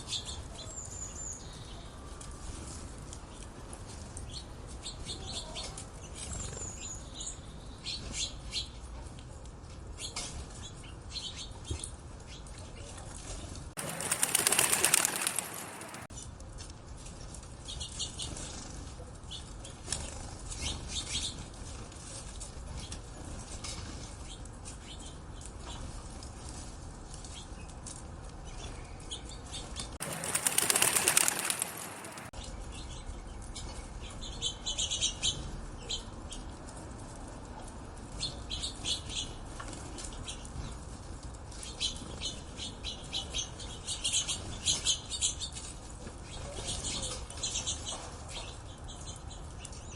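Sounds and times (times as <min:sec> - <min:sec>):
small birds chirping: 0:04.2 - 0:08.9, 0:13.8 - 0:16.2, 0:28.4 - 0:36.5
wings flapping: 0:13.8 - 0:16.1, 0:30.0 - 0:32.3.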